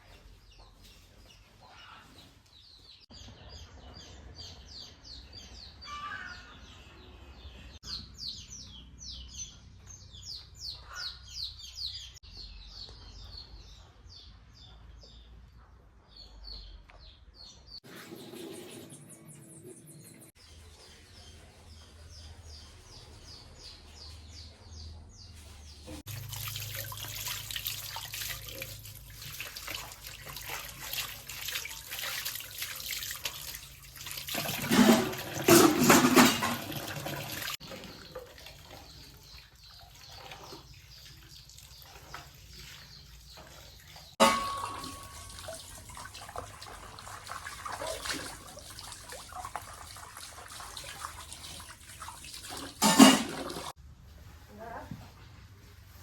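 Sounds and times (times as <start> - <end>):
running water splashing: 26.0 - 53.8.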